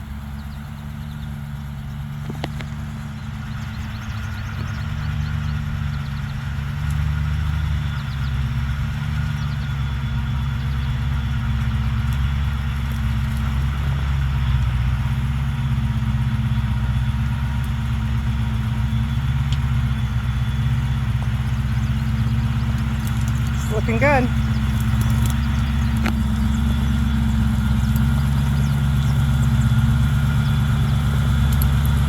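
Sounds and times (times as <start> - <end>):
truck engine running at low revs: 0.0 - 32.0
faint clicks: 24.4 - 26.4, 31.4 - 32.0.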